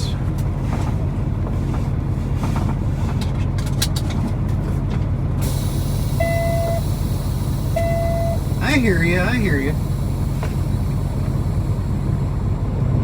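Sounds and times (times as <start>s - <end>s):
diesel truck engine idling: 4.5s - 13.0s
electronic chime beeping: 6.2s - 6.8s, 7.8s - 8.5s.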